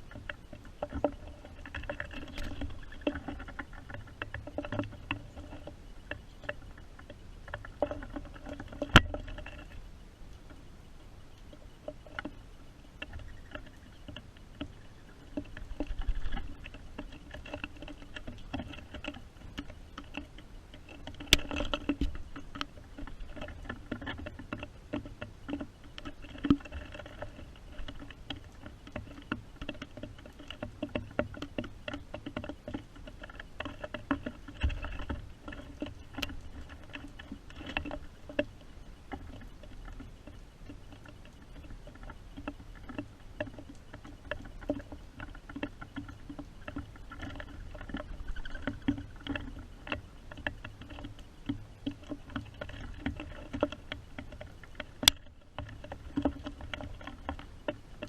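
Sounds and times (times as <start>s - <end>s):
taps and drips: 0.0s - 9.8s, 13.0s - 58.0s
rain pattering: 0.0s - 58.0s.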